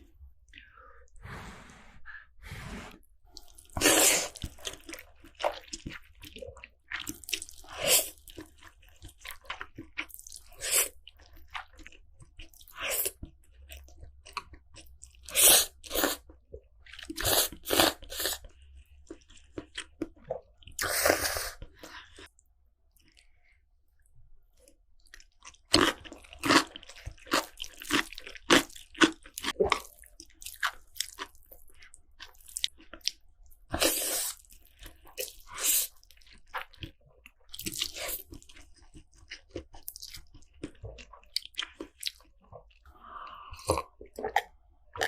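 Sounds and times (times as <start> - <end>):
slurping noodles: 1.2 - 5.0.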